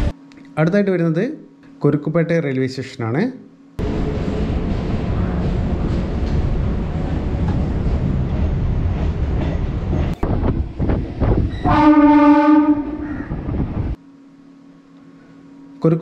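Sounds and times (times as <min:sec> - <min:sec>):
electric train wheels rumbling: 0:03.8 - 0:14.0
train horn: 0:11.6 - 0:13.2.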